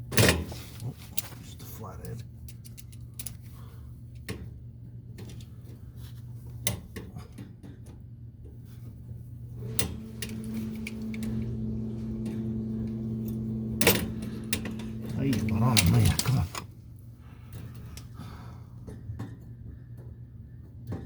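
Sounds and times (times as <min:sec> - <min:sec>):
low hum: 0:09.6 - 0:16.6.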